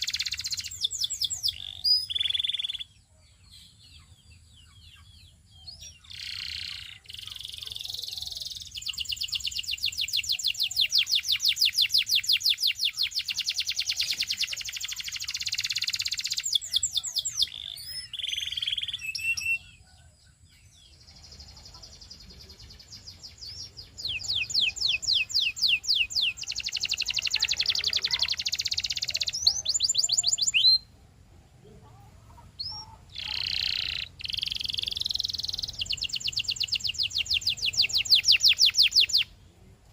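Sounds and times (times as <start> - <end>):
canary singing trills: 0.0 - 39.4.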